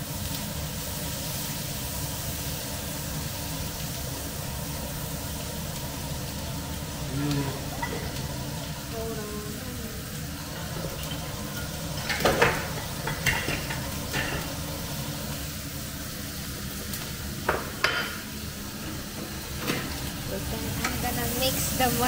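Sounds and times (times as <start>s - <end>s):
asparagus sizzling in a pan: 0.0s - 22.0s
utensils clinking against pans: 7.3s - 8.4s, 10.4s - 14.6s, 16.9s - 18.2s.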